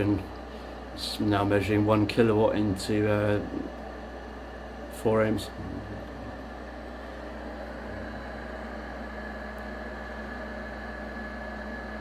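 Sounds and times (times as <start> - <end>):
power amplifier hum and whir: 0.0 - 12.0.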